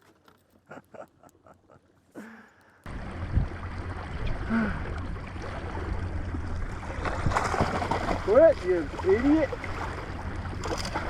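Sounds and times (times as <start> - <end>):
low steady rumble: 2.4 - 11.0
water rushing and splashing: 2.9 - 11.0.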